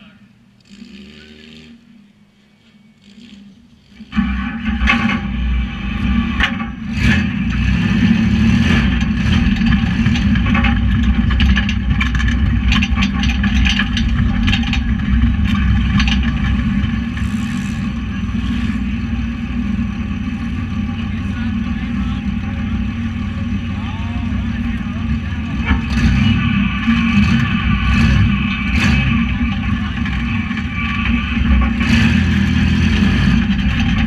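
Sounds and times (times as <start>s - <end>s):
truck engine under throttle: 0.0s - 34.0s
sharp knocks and clattering: 6.3s - 7.7s, 8.5s - 18.8s, 25.5s - 26.4s.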